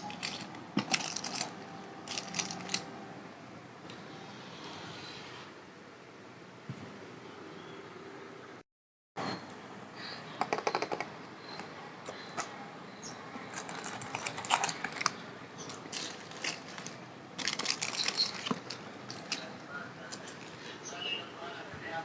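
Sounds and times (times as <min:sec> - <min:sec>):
plastic snack packets crackling: 0:00.0 - 0:02.9, 0:13.5 - 0:20.8.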